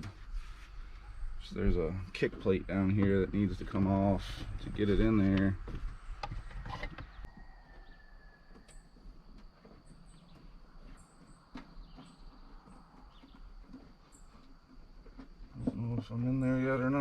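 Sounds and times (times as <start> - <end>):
faint high bird chirps: 6.1 - 9.0.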